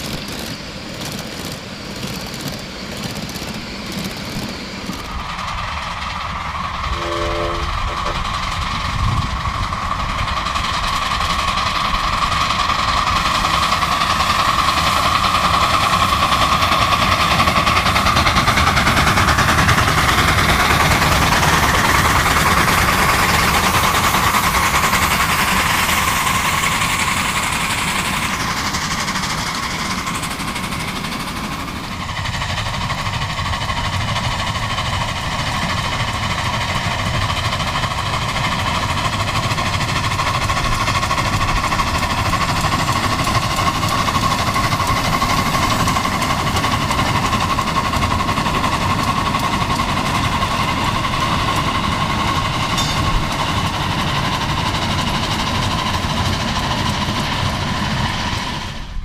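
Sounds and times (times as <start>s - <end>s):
miniature train clattering rumble: 0.0s - 59.0s
steady high ringing tone: 6.8s - 8.7s, 52.6s - 54.5s.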